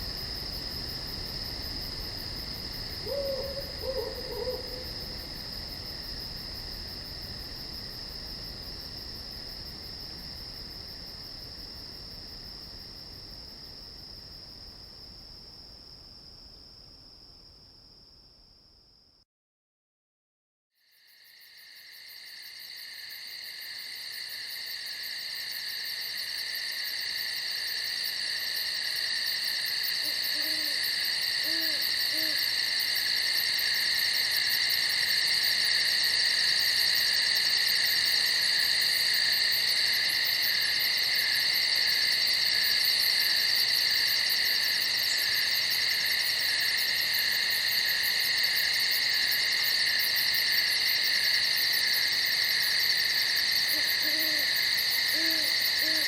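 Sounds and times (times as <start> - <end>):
crickets chirring: 0.0 - 16.2, 20.9 - 56.0
faint low hoots: 3.0 - 4.9, 30.0 - 30.8, 31.4 - 32.4, 53.7 - 54.5, 55.1 - 56.0.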